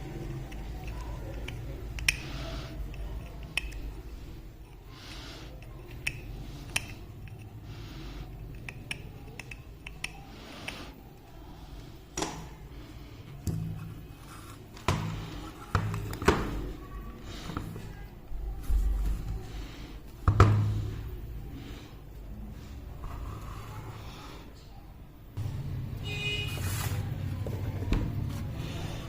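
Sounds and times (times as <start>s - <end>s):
hand tools clicking and snipping: 0.4s - 4.0s, 5.6s - 7.5s, 8.3s - 10.9s
tool scraping: 13.6s - 16.2s.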